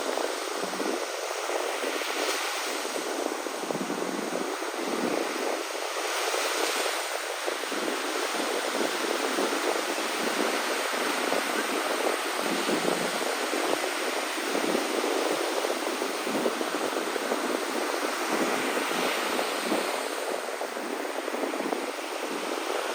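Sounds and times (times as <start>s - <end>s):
sea waves rushing on shore: 0.0s - 22.9s.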